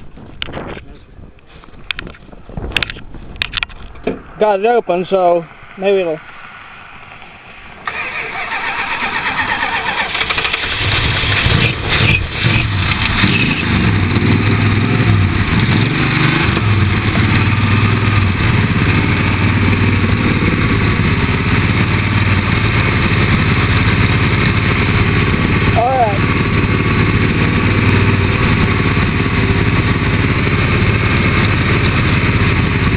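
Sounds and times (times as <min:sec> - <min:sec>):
car engine cranking and starting: 0:07.8 - 0:32.9.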